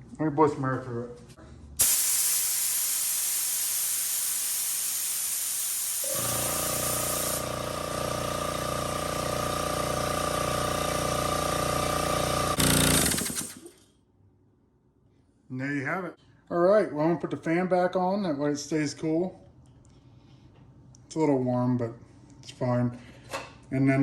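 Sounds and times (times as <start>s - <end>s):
compressed air hissing from hose: 1.8s - 7.6s
compressor motor and pump running: 1.8s - 13.8s.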